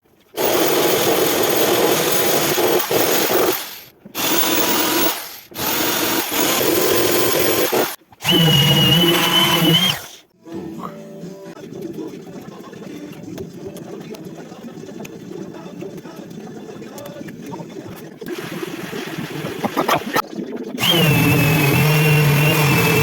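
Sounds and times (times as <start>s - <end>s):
handheld power tool running: 0.4s - 10.1s, 20.8s - 23.0s.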